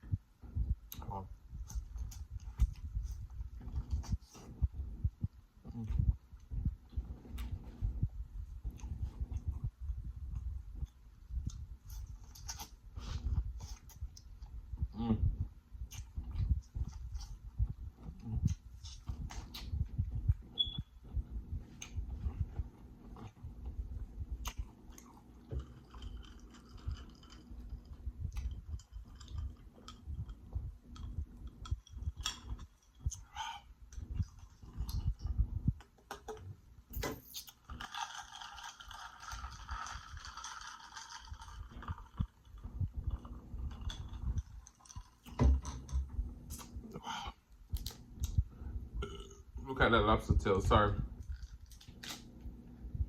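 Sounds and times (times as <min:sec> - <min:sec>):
chewing and biting food: 0:21.1 - 0:36.0.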